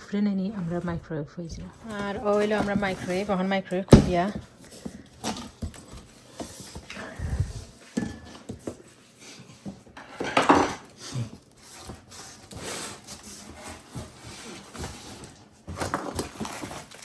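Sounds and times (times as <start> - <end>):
microwave being handled and opened: 3.9 - 4.4.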